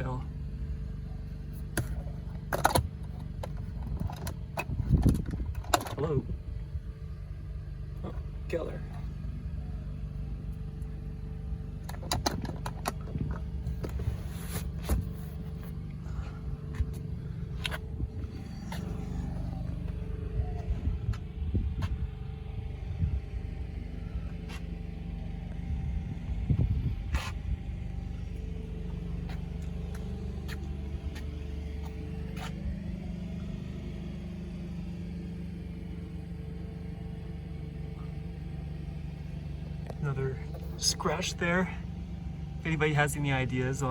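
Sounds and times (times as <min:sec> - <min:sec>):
car engine idling: 0:00.0 - 0:43.9
clicks and knocks in car cabin: 0:01.7 - 0:06.1, 0:11.8 - 0:14.0.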